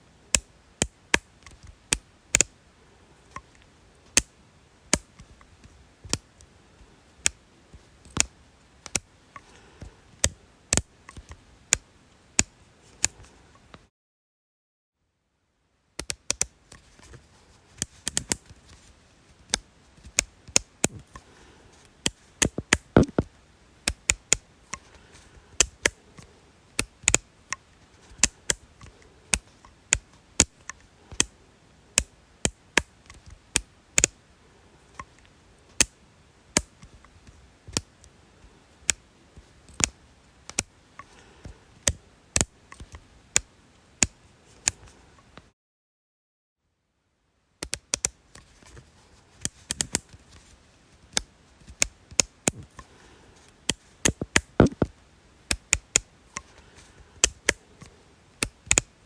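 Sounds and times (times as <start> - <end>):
sharp dry clicks: 22.0 - 24.9, 25.6 - 31.4, 47.6 - 48.2, 53.6 - 59.0.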